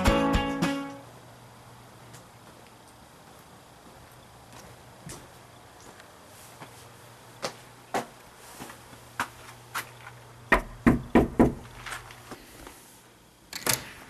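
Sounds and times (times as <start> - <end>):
faint steady hum: 0.0 - 14.0
knocking on a door: 10.5 - 11.6.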